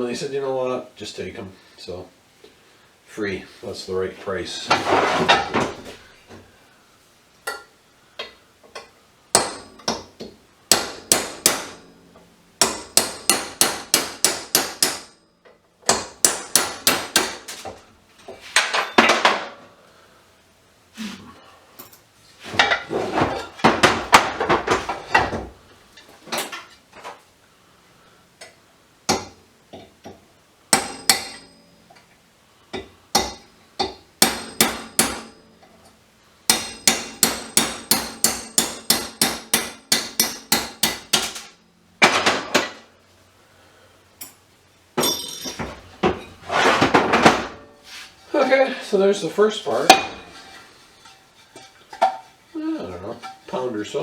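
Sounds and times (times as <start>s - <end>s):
hammer striking metal punch: 9.3s - 11.9s, 12.6s - 15.2s, 15.9s - 17.5s, 30.7s - 31.6s, 32.7s - 35.4s, 36.5s - 41.4s, 49.9s - 50.4s.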